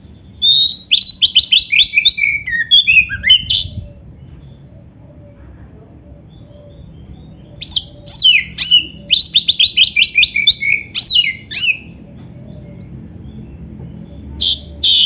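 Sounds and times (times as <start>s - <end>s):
bird singing varied whistled notes: 0.2s - 4.7s, 6.6s - 12.0s, 14.2s - 15.0s.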